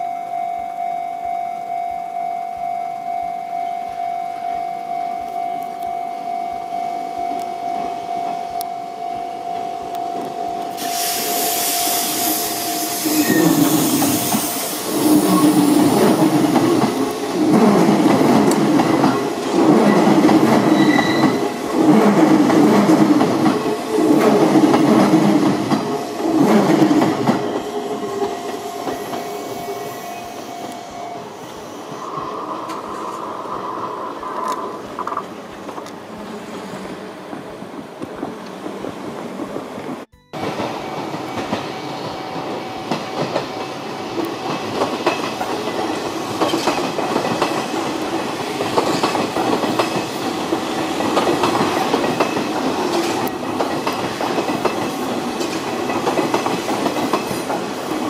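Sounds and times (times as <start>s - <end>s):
train wheels clattering over rail joints: 13.9s - 29.4s, 37.3s - 58.0s.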